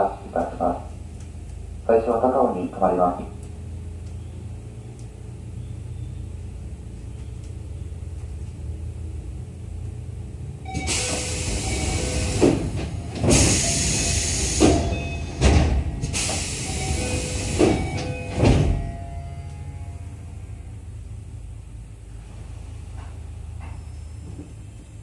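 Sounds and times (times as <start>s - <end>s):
train low hum: 0.0s - 25.0s
air hissing bursts: 10.8s - 15.0s, 16.0s - 18.0s.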